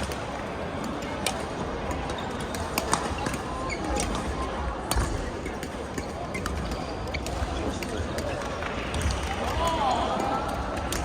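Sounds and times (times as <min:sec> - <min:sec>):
shoes squeaking on court floor: 0:02.1 - 0:04.2.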